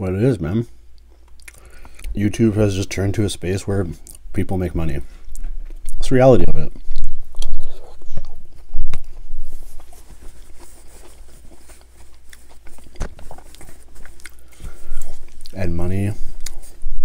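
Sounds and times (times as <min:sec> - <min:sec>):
chewing with wet mouth clicks: 0:00.9 - 0:02.2, 0:04.0 - 0:04.2, 0:11.1 - 0:15.6.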